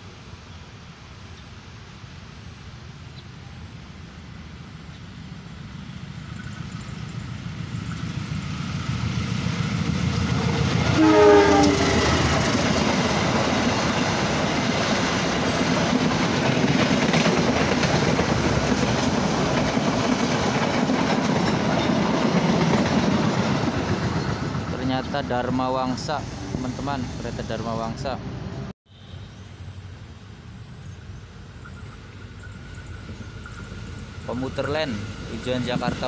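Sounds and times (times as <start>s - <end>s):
train rumble: 5.5s - 28.7s, 29.5s - 36.0s
train horn: 10.8s - 12.3s.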